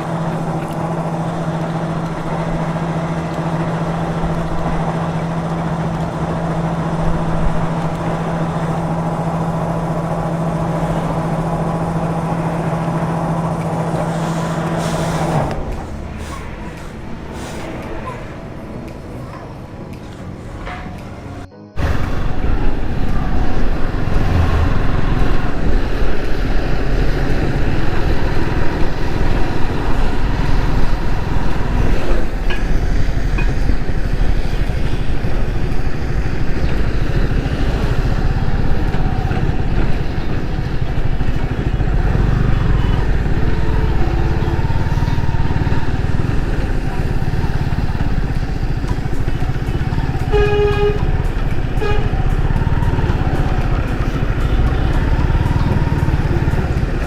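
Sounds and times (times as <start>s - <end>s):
motorcycle engine cruising: 0.0s - 57.0s
road and wind noise: 0.0s - 57.0s
horn: 50.1s - 53.3s.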